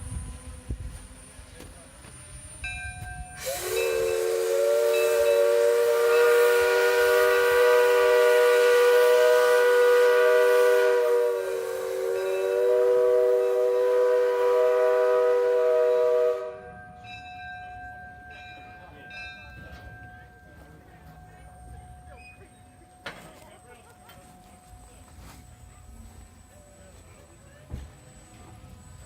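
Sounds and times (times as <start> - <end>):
steam locomotive chime whistle: 0.0 - 20.7.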